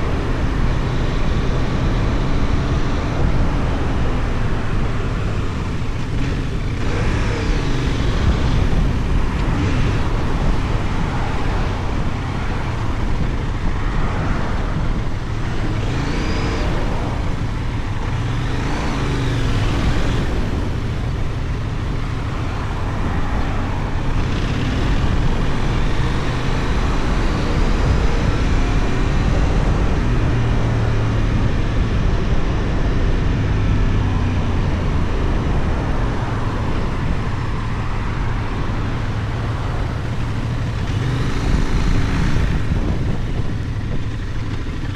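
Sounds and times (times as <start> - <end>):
motorcycle engine running: 0.0 - 44.9
wind rushing on microphone: 0.0 - 44.9.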